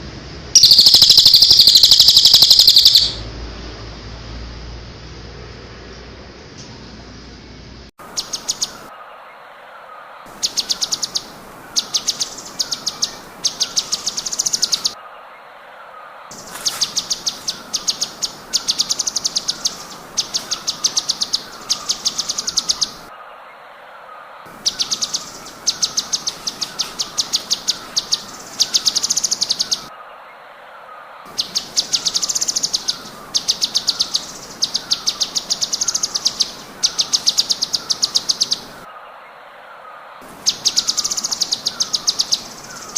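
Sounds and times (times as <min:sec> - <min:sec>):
bird singing stuttering trills: 0:00.6 - 0:03.2, 0:08.0 - 0:08.9, 0:10.3 - 0:15.0, 0:16.3 - 0:23.1, 0:24.5 - 0:29.9, 0:31.3 - 0:38.9, 0:40.2 - 0:42.9
low repeated chirping: 0:00.6 - 0:03.3, 0:08.0 - 0:09.0, 0:10.3 - 0:15.0, 0:16.3 - 0:23.1, 0:24.5 - 0:29.9, 0:31.3 - 0:38.9, 0:40.2 - 0:42.9.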